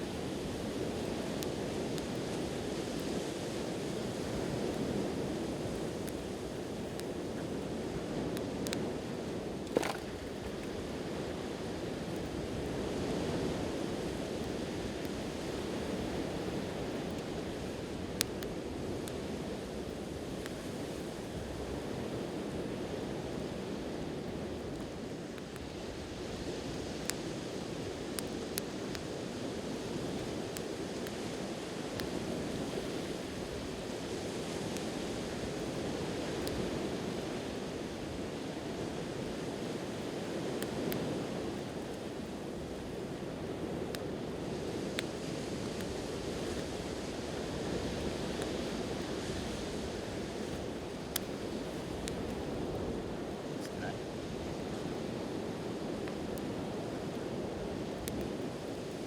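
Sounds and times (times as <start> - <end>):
sea waves washing onto shore: 0.1 - 59.0
campfire pops: 9.6 - 11.1, 47.6 - 52.5, 57.9 - 58.4.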